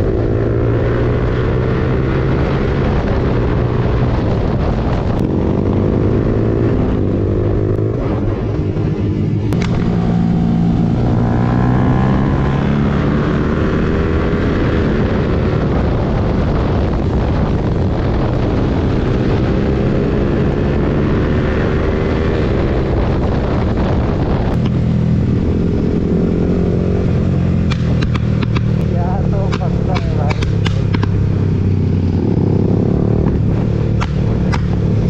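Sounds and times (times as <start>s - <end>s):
motorcycle engine accelerating: 0.0s - 35.0s
wind noise on microphone: 0.0s - 35.0s.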